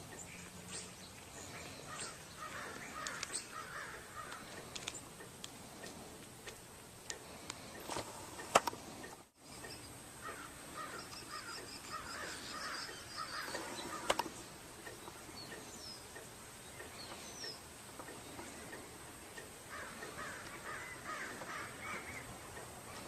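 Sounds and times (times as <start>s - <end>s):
birds calling: 0.0s - 23.0s.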